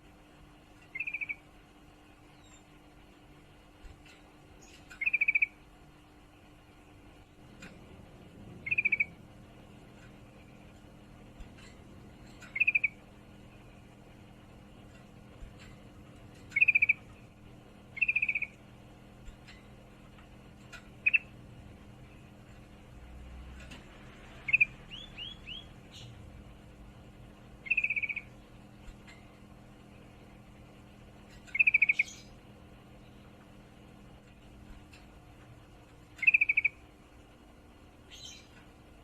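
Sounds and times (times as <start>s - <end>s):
bird chattering trills: 0.8s - 1.5s, 4.6s - 5.6s, 8.6s - 9.7s, 11.5s - 13.8s, 15.6s - 17.3s, 17.9s - 18.7s, 20.6s - 21.4s, 24.4s - 26.2s, 27.6s - 28.4s, 31.3s - 32.4s, 36.1s - 36.9s.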